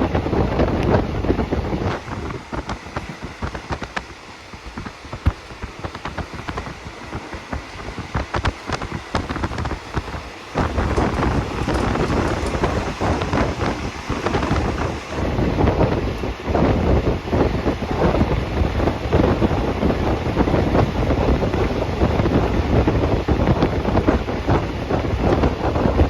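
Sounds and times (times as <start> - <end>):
passenger train running: 0.0 - 26.0
wind noise on microphone: 0.0 - 26.0
small clicks and rattles: 8.1 - 15.3.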